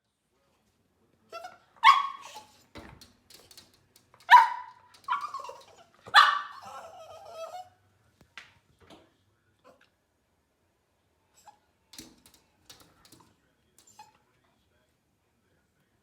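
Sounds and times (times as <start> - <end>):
puppy barking: 1.4 - 2.5, 4.2 - 7.7
puppy whining: 4.3 - 7.8.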